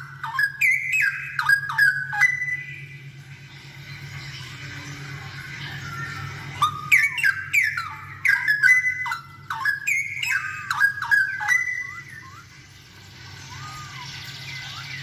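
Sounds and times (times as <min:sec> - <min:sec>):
bird singing whistled notes: 0:00.0 - 0:03.0, 0:05.8 - 0:12.6, 0:13.4 - 0:15.0.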